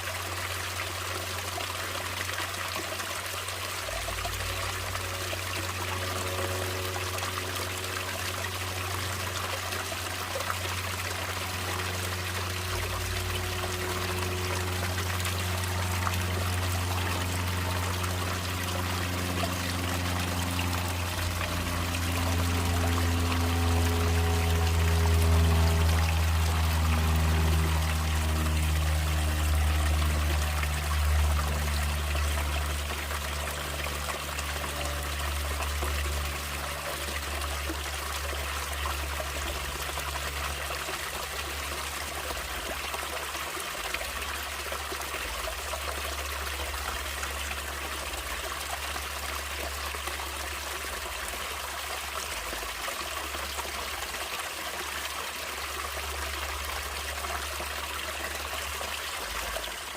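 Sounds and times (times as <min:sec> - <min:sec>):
stream water trickling: 0:00.0 - 0:59.9
low sustained music tones: 0:00.6 - 0:43.2.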